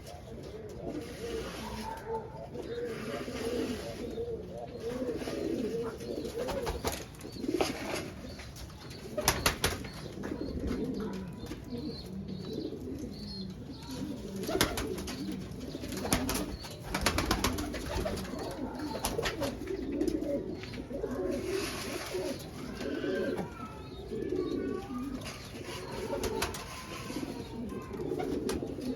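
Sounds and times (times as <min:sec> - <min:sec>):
pigeons cooing: 0:00.0 - 0:28.9.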